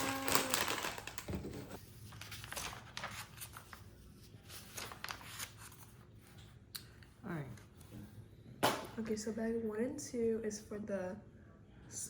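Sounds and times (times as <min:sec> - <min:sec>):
plastic pieces clicking and rattling: 0:00.0 - 0:01.6
plastic bags crinkling: 0:00.0 - 0:03.6.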